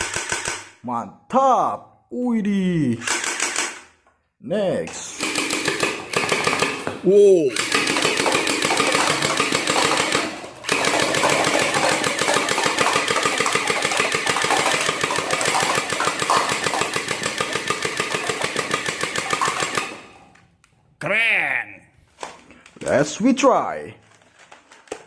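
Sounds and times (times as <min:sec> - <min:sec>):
toy gun firing rattle: 0:00.0 - 0:00.8, 0:03.0 - 0:03.9, 0:05.2 - 0:06.9, 0:07.5 - 0:20.1.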